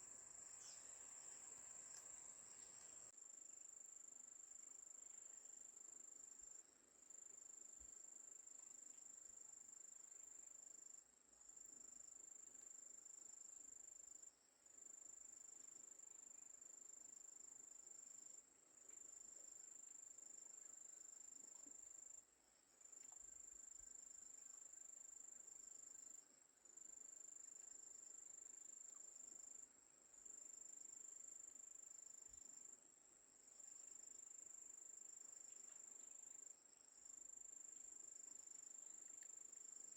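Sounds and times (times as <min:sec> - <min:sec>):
soft background hiss: 0:00.0 - 0:03.2.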